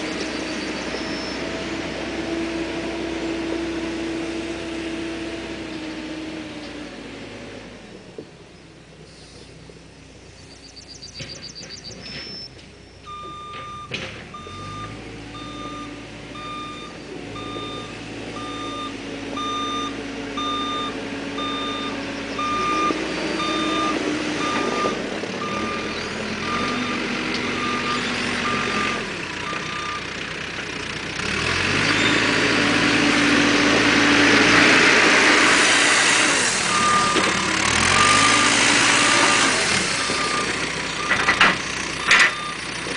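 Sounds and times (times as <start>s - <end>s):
diesel engine running: 0.0s - 42.9s
reversing alarm beeping: 10.7s - 30.1s, 36.6s - 41.4s, 42.0s - 42.7s.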